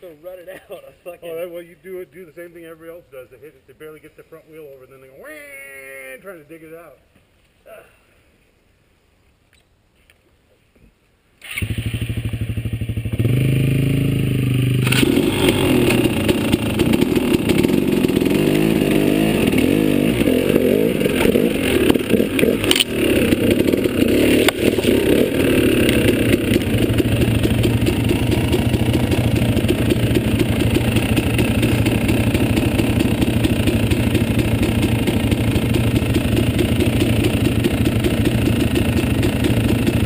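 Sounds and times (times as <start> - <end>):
dirt bike engine: 11.4 - 40.0.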